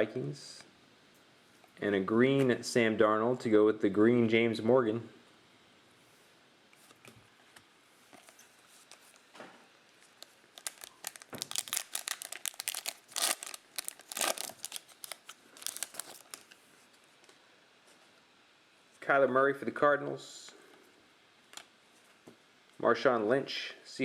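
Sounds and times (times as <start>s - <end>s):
plastic wrapper crinkling and tearing: 8.2s - 9.3s, 9.9s - 16.6s.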